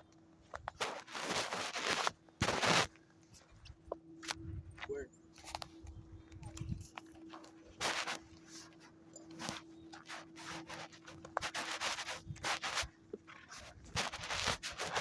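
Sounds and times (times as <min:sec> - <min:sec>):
footsteps crunching on a path: 0:00.1 - 0:15.0
irregular scraping: 0:00.6 - 0:03.6, 0:06.6 - 0:15.0
clothing rustling: 0:07.2 - 0:15.0.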